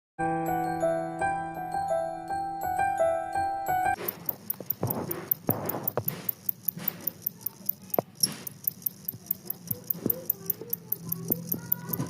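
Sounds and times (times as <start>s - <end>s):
cricket chirping: 4.0s - 12.0s
scratchy rustling: 4.0s - 12.0s
sharp clicks: 4.0s - 12.0s.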